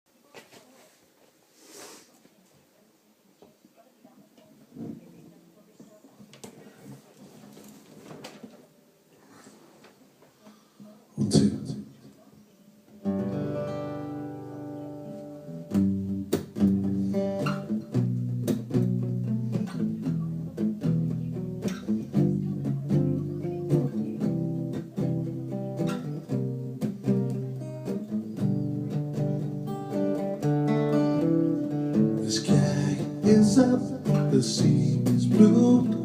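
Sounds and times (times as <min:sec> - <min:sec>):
acoustic guitar strumming: 0:13.0 - 0:36.0.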